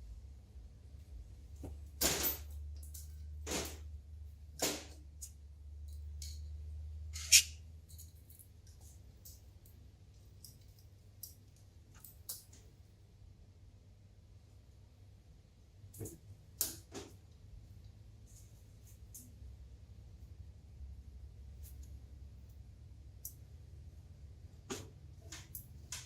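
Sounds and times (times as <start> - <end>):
hand tools clicking and scraping: 7.2 - 7.5.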